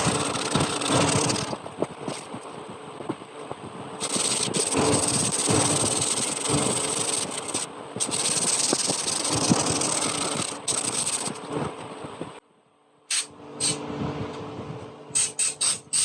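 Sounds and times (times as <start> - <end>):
power tool on wood: 0.0 - 1.6, 4.0 - 11.4.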